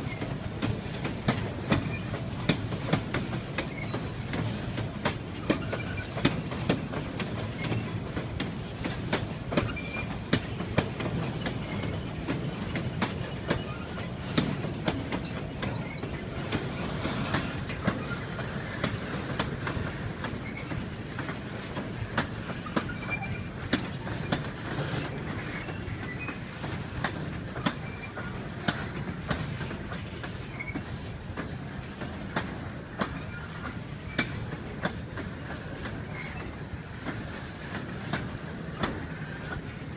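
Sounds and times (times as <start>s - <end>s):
train rumbling on rails: 0.0s - 39.9s
wheels clacking over rail joints: 0.0s - 39.9s
wheel squeals: 1.8s - 2.2s, 3.6s - 4.2s, 5.4s - 6.2s, 7.5s - 8.0s, 9.6s - 10.2s, 11.4s - 12.2s, 15.2s - 16.2s, 18.0s - 18.6s, 20.3s - 20.8s, 22.6s - 23.6s, 24.2s - 26.4s, 27.6s - 28.8s, 30.3s - 31.0s, 33.1s - 34.4s, 35.8s - 38.1s, 38.7s - 39.9s.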